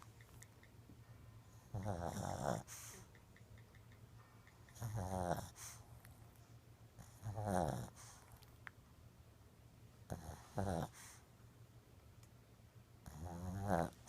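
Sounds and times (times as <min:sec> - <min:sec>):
dog snoring: 0:01.6 - 0:03.1, 0:04.7 - 0:05.8, 0:07.0 - 0:08.3, 0:10.1 - 0:11.2, 0:13.0 - 0:14.0.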